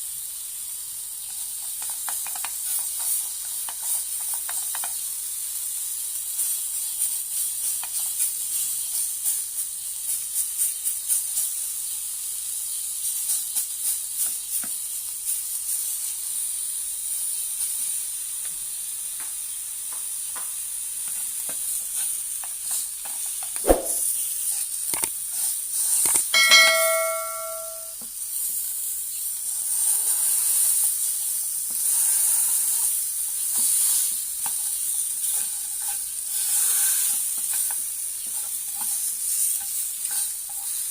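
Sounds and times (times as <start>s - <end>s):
ribs sizzling and crackling: 0.0s - 23.6s, 24.2s - 26.4s, 28.0s - 40.9s
sharp click: 23.6s - 24.0s
short pitched ringing tone: 26.4s - 28.0s.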